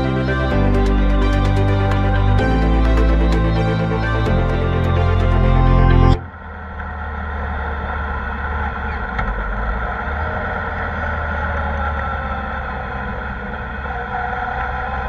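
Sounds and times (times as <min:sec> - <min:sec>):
road and wind noise: 0:06.2 - 0:15.0.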